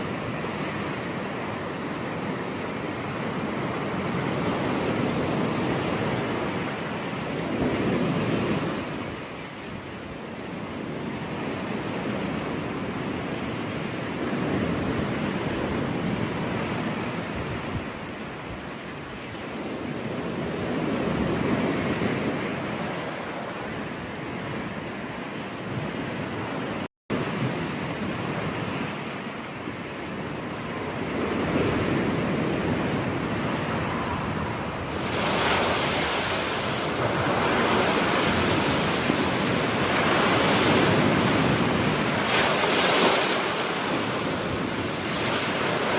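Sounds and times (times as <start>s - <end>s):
ocean surf breaking on a beach: 0.0s - 45.9s.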